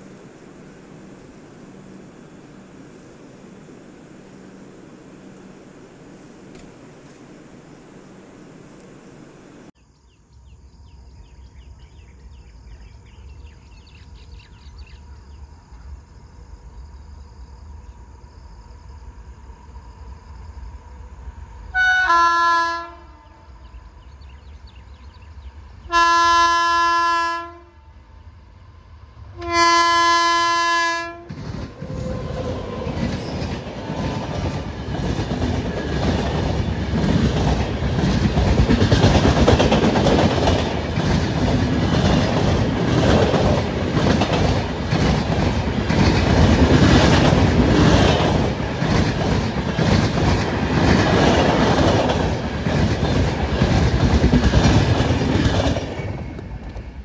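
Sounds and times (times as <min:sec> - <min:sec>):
train wheels rushing on rails: 0:00.0 - 0:09.8, 0:28.5 - 0:57.0
locomotive horn blasts: 0:21.8 - 0:23.4, 0:25.9 - 0:27.9, 0:29.4 - 0:32.5.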